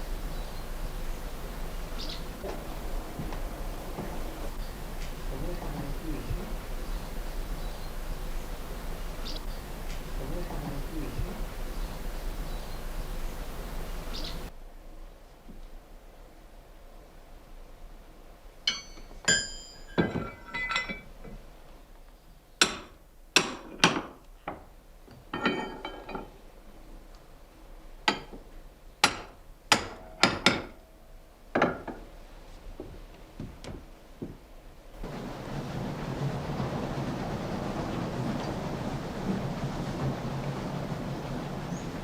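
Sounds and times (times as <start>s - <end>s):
steady rushing noise: 0.0s - 14.6s, 34.8s - 42.0s
hammer striking metal: 18.7s - 21.0s, 29.0s - 30.8s.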